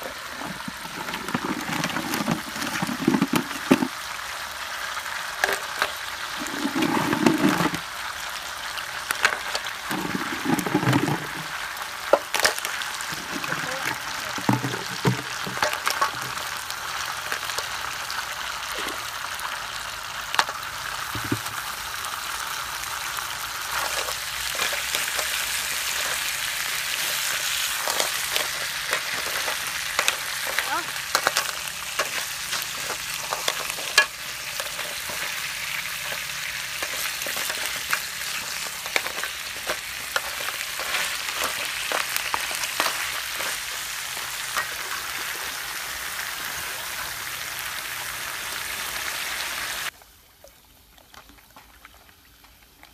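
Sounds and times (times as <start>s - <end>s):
shellfish sizzling in a wok: 0.0s - 50.0s
spatula stirring shells clicking: 23.6s - 45.2s.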